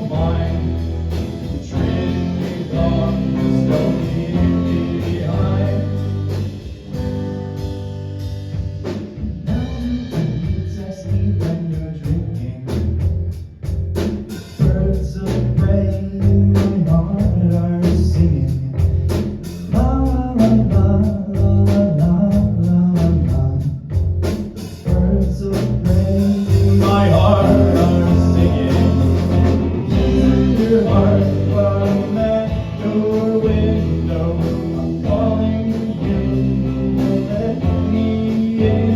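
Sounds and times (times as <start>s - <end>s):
person singing: 0.0s - 6.4s, 24.9s - 38.9s
guitar: 0.0s - 38.9s
drum hits: 25.9s - 33.8s.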